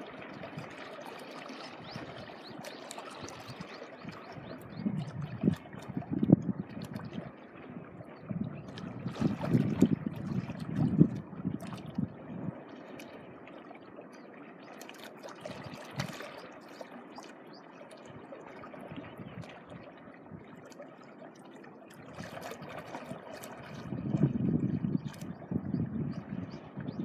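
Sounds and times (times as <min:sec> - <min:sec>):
small waves washing on shore: 0:00.0 - 0:25.4
wind buffeting microphone: 0:03.3 - 0:12.7, 0:18.9 - 0:19.5, 0:23.6 - 0:27.0.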